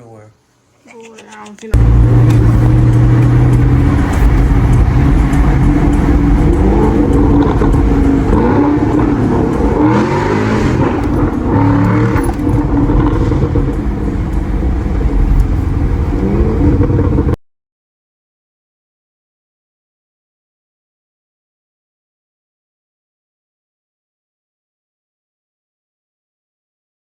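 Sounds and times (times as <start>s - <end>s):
car engine revving: 1.8s - 17.4s.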